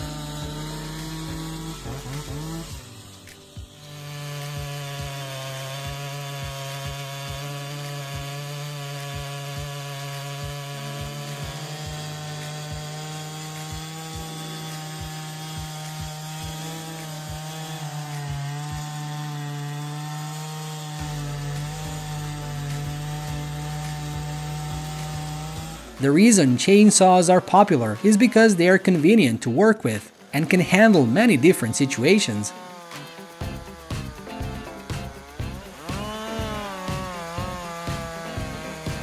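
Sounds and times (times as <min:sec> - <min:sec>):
chainsaw cutting wood: 0:00.0 - 0:39.0.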